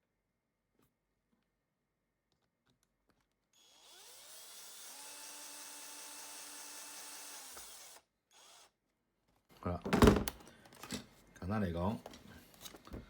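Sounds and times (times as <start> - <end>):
power driver motor whirring: 3.6 - 8.7.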